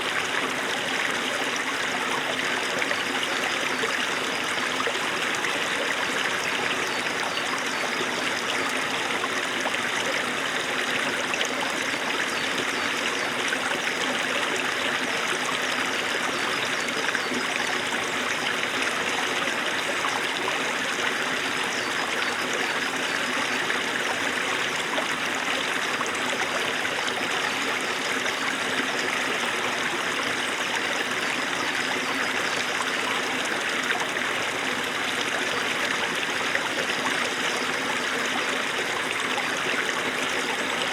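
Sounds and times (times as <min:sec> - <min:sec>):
stream running over stones: 0:00.0 - 0:40.9.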